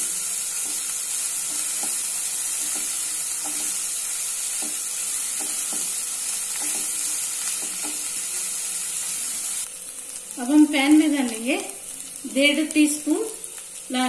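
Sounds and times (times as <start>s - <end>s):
spatula stirring and scraping: 0.0s - 9.4s
paste sizzling in hot oil: 0.0s - 14.0s.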